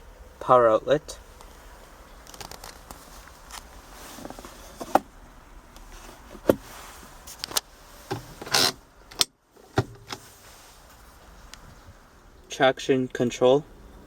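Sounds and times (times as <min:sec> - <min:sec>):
plastic sliding rub: 0:02.3 - 0:05.1, 0:05.8 - 0:08.8.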